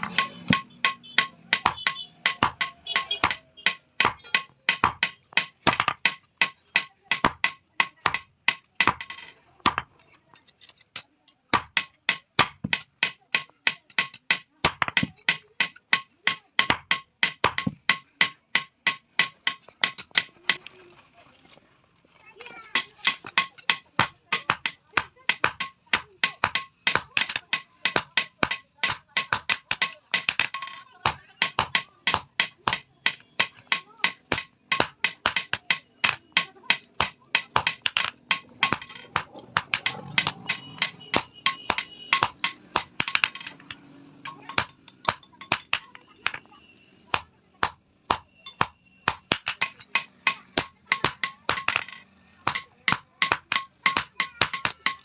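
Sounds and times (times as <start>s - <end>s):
hammer blows on steel anvil: 23.0s - 46.4s.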